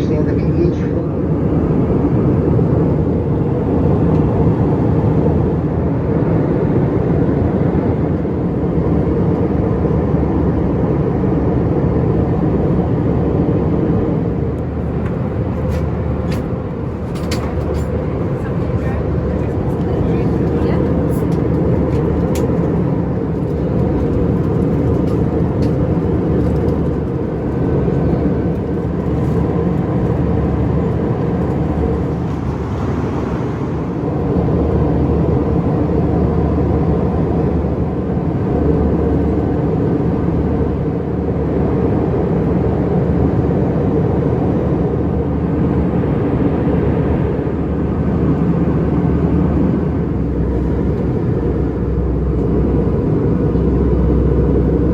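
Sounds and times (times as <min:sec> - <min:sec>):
airliner cabin airflow and engine drone: 0:00.0 - 0:54.9
faint steady whine: 0:48.4 - 0:54.9.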